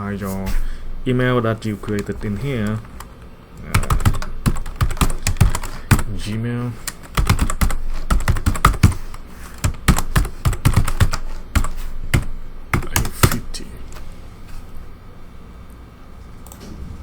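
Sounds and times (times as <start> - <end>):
computer keyboard typing: 1.7 - 13.6.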